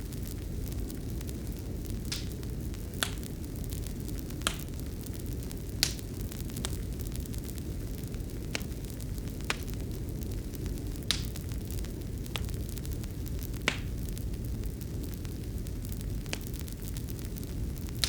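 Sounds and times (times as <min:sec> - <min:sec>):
fire rumbling: 0:00.0 - 0:18.0
wood crackling and popping: 0:00.0 - 0:18.0.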